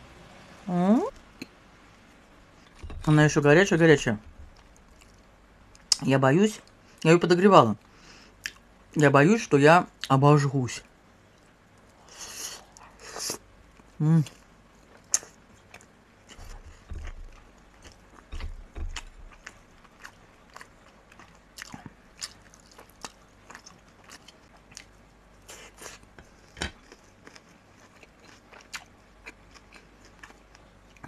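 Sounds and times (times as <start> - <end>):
dull low thumps: 2.8 - 4.9, 18.3 - 19.5
person chewing wet mouth sounds: 14.2 - 31.0.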